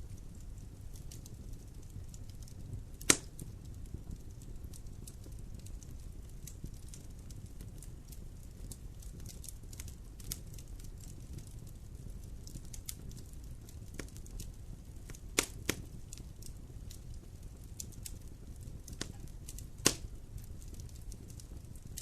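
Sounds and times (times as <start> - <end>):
fire crackling: 0.0 - 22.0
fire flames rumbling: 0.0 - 22.0
loud sharp pop of fire: 3.0 - 3.5, 15.0 - 15.9, 18.9 - 20.7.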